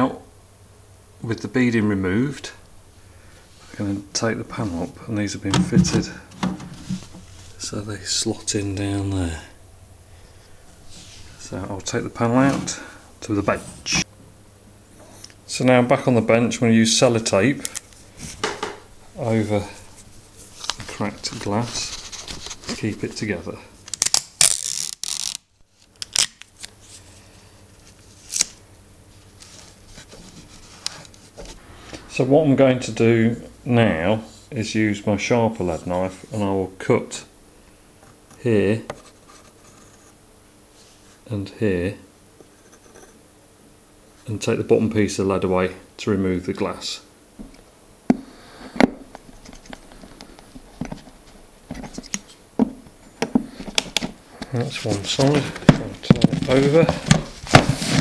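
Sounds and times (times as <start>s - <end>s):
quiet handling: 0.0s - 15.4s, 17.3s - 23.7s
sticky tape tearing: 23.8s - 26.7s, 28.2s - 28.6s.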